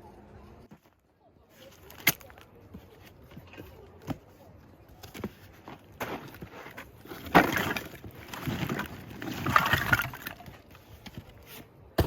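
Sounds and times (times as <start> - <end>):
camping gear rustling and clattering: 0.6 - 12.0.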